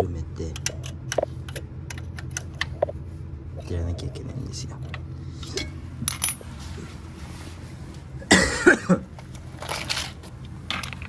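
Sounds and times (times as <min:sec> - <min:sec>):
metal hand tools clinking: 0:05.4 - 0:06.4.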